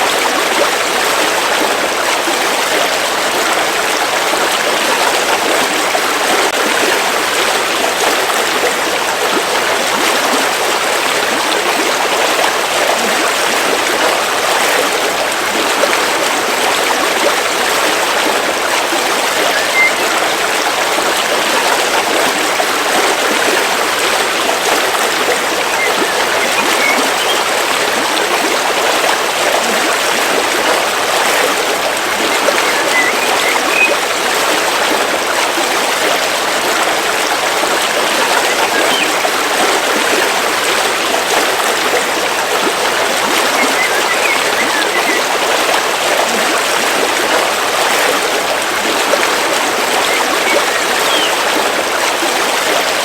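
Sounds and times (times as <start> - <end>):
river water flowing over rocks: 0.0 - 53.0
faint bird chirps: 19.4 - 20.2, 25.6 - 27.5, 32.3 - 34.0, 38.4 - 39.2, 43.4 - 45.3, 49.9 - 51.4.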